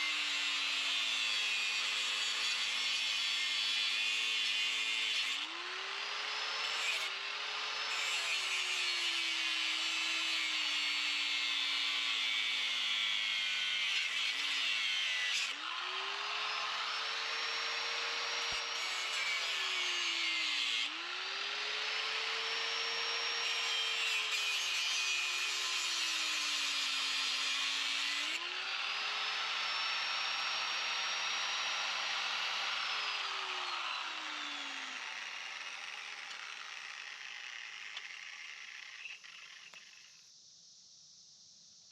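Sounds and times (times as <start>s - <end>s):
electric saw cutting wood: 0.0s - 40.0s.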